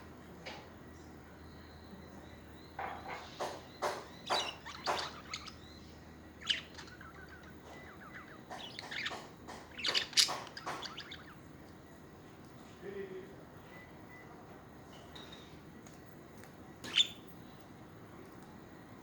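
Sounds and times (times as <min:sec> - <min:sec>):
budgerigars chirping: 0:02.6 - 0:11.5, 0:16.8 - 0:17.3.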